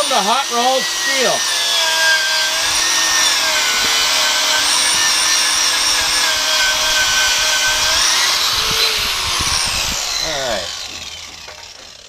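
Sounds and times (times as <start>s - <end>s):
angle grinder grinding steel: 0.0s - 12.0s.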